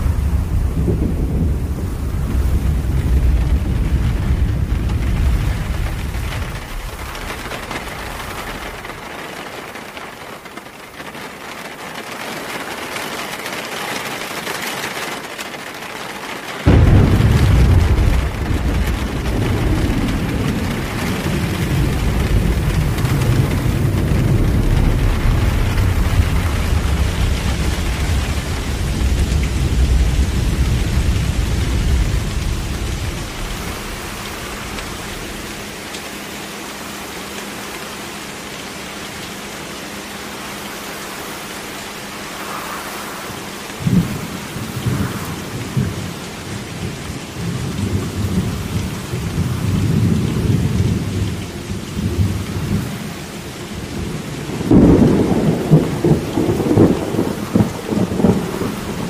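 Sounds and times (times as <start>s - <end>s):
sharp thunderclap: 0.0s - 9.2s, 16.6s - 35.6s, 42.2s - 51.4s, 54.5s - 59.0s
rolling thunder: 0.0s - 9.7s, 16.6s - 35.9s, 41.6s - 53.1s, 53.8s - 59.0s
steady rain: 0.0s - 59.0s.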